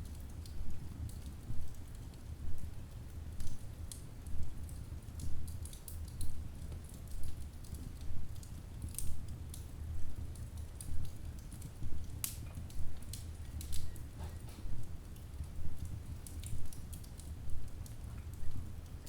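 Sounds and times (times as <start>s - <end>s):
logs crackling and popping: 0.0s - 19.0s
low rumble of flames: 0.0s - 19.0s.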